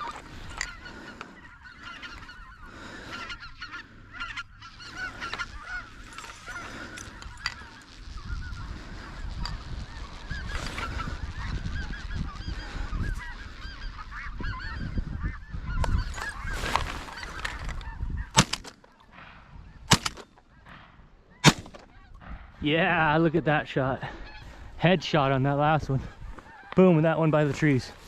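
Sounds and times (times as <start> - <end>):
flock of geese calling: 0.0 - 28.0
shotgun shots: 18.4 - 18.8, 19.9 - 20.3, 21.4 - 21.9.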